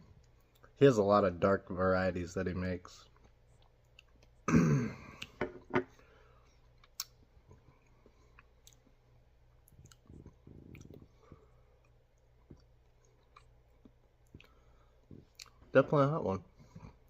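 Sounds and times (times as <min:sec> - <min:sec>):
man clearing throat: 0:04.5 - 0:05.2.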